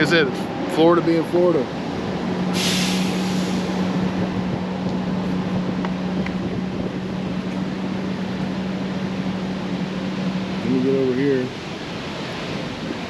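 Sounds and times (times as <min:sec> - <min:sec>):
bus engine humming: 0:00.0 - 0:13.0
rough rumbling noise: 0:00.0 - 0:13.0
burst of hiss: 0:02.5 - 0:03.8.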